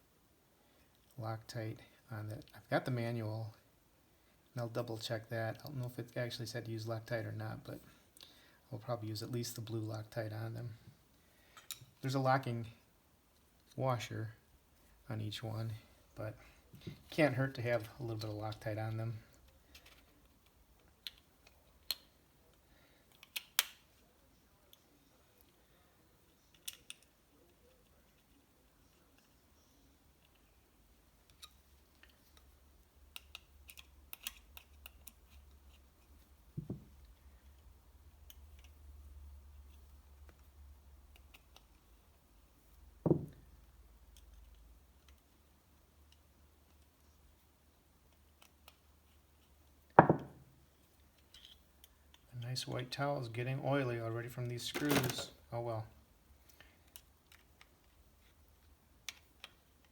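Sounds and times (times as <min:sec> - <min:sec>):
dull knocks of tools set down: 0:36.6 - 0:36.9, 0:43.1 - 0:43.4, 0:50.0 - 0:50.4.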